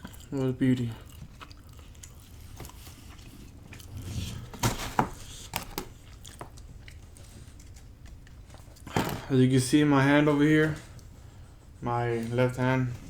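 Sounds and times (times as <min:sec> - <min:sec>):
person chewing food: 0:00.0 - 0:04.6, 0:05.2 - 0:08.9.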